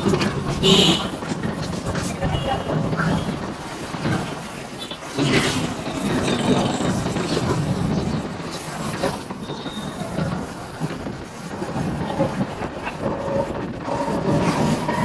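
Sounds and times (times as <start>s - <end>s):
motorcycle riding road noise: 0.0s - 9.4s.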